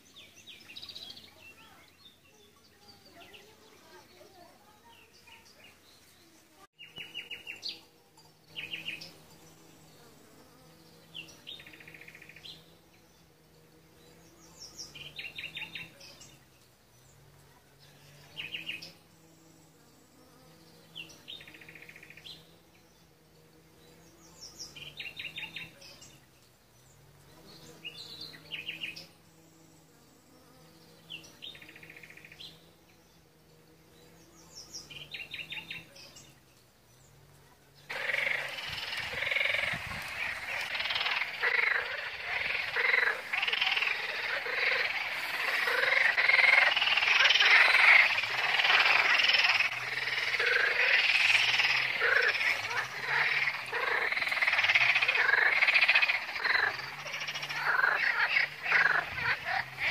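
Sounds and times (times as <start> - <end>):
songbird chirping: 0.0 - 59.9
insect buzzing in flight: 8.2 - 15.9, 37.9 - 59.9.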